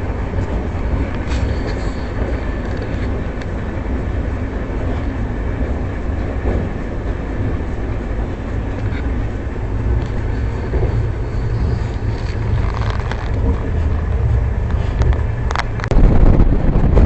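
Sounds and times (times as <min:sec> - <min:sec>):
passenger train rumbling: 0:00.0 - 0:17.0.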